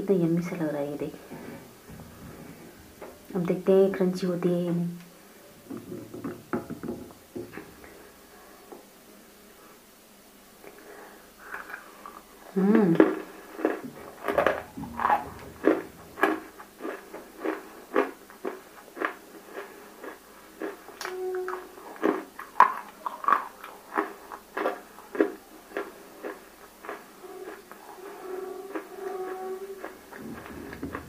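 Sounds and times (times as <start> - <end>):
crunchy chewing: 10.7 - 31.0.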